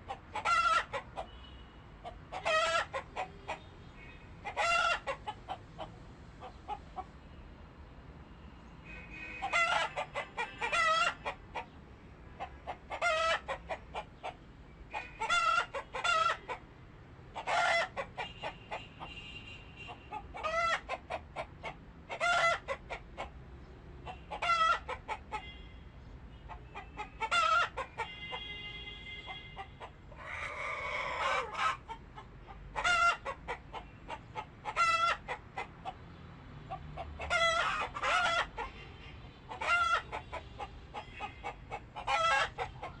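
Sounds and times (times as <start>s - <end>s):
chickens clucking: 0.0s - 1.4s, 2.0s - 3.7s, 4.4s - 7.1s, 9.4s - 11.8s, 12.4s - 16.6s, 17.3s - 18.9s, 19.9s - 23.4s, 24.0s - 25.5s, 26.5s - 28.3s, 29.3s - 38.8s, 39.5s - 43.0s
chicken squawk: 0.1s - 1.3s, 2.0s - 3.6s, 4.4s - 6.8s, 9.3s - 11.7s, 12.4s - 16.6s, 17.4s - 18.8s, 19.9s - 23.3s, 24.0s - 25.5s, 26.5s - 28.3s, 29.3s - 36.0s, 36.7s - 38.7s, 39.5s - 43.0s.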